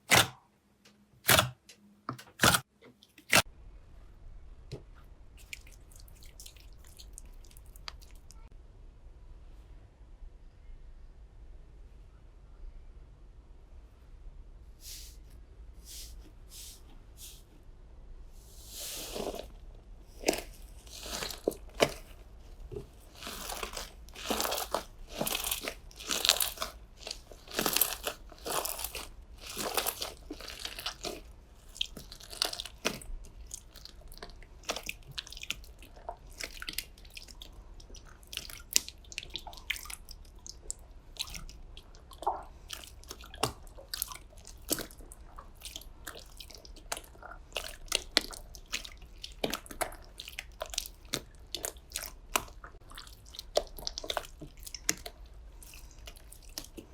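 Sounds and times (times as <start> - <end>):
slime crackling and popping: 20.1 - 56.9.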